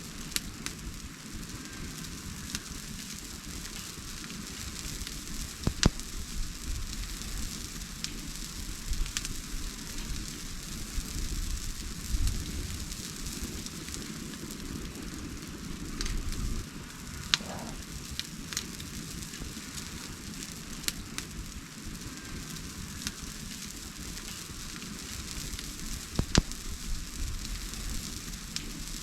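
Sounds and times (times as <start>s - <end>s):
wood fire hissing and crackling: 0.0s - 29.0s.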